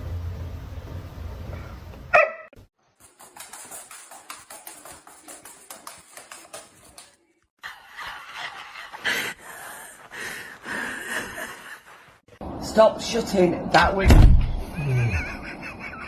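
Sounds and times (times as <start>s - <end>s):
dog barking: 2.1s - 2.6s.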